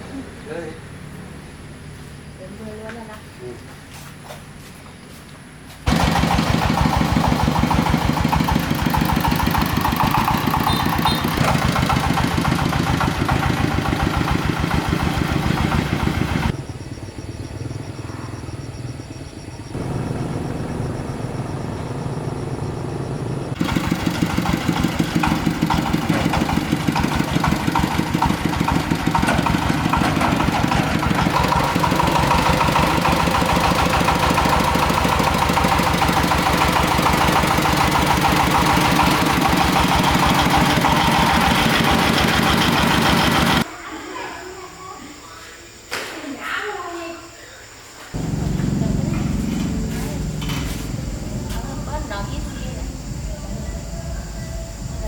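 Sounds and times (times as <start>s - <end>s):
diesel engine chugging: 5.9s - 43.7s, 48.2s - 55.0s.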